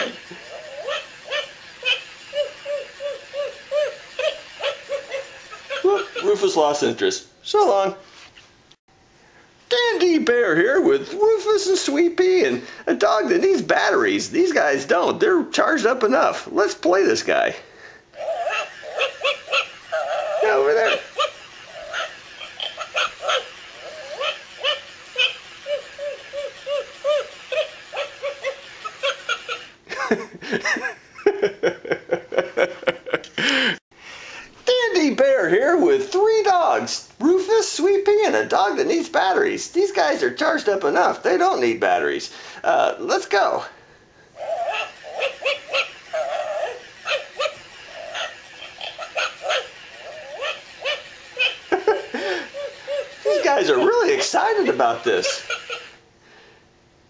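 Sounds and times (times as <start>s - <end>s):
dog barking and yipping: 0.0s - 6.7s, 18.2s - 29.8s, 44.4s - 56.0s
toy puppy laughing: 0.0s - 6.7s, 18.1s - 33.7s, 44.4s - 56.0s.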